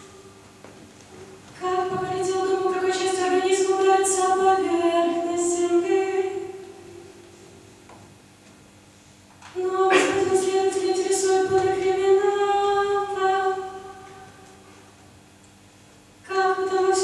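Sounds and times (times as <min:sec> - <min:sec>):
voices singing a held note: 0:09.6 - 0:12.3.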